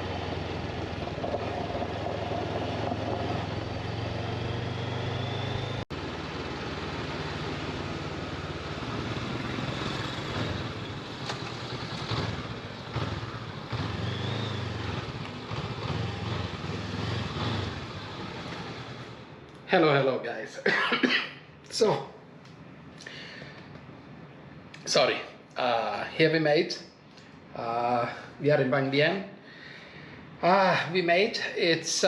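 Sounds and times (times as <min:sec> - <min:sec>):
motorcycle engine running: 0:00.0 - 0:19.3
wind and road noise: 0:00.0 - 0:19.6.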